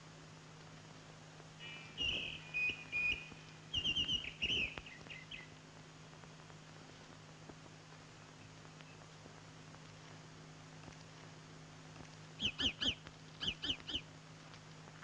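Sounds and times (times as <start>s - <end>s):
low soundtrack hum: 0.0s - 15.0s
bird chirps and trills: 1.6s - 5.5s, 12.4s - 14.1s.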